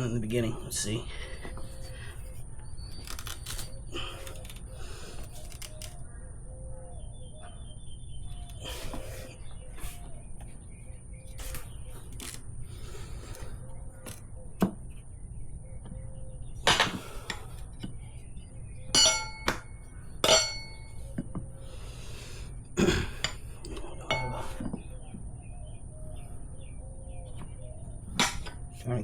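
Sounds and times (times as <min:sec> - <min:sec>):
metal tire levers clanking on rim: 0:19.0 - 0:21.0.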